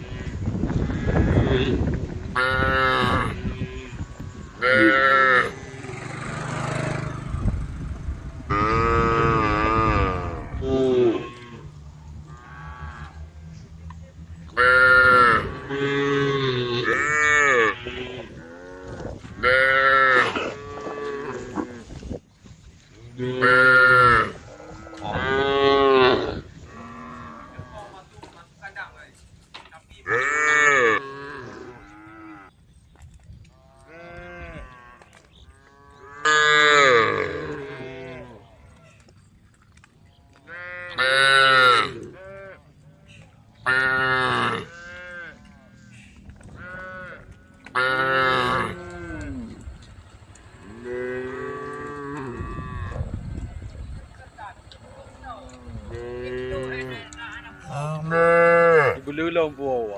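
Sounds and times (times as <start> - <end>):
cows mooing: 0.0 - 7.8, 8.4 - 21.9, 23.0 - 28.0, 30.0 - 32.5, 33.6 - 38.8, 40.1 - 43.0, 43.6 - 53.2, 54.3 - 59.9.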